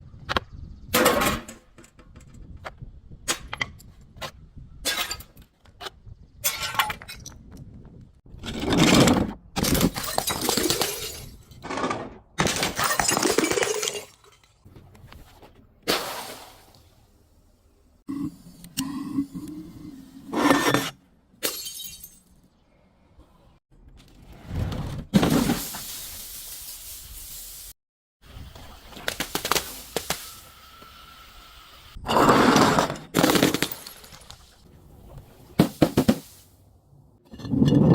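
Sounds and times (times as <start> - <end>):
glass bottles breaking: 9.6 - 11.4, 12.4 - 14.6, 21.4 - 22.4, 33.1 - 34.4.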